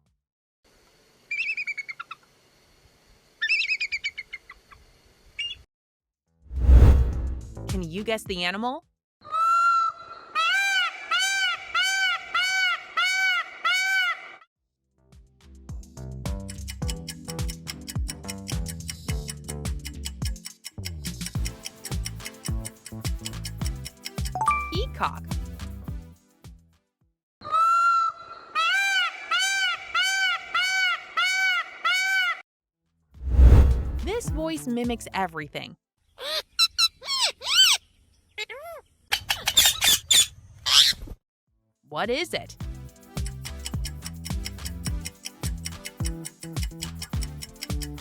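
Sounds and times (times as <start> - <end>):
peacock calling: 9.3 - 14.4, 27.4 - 32.4.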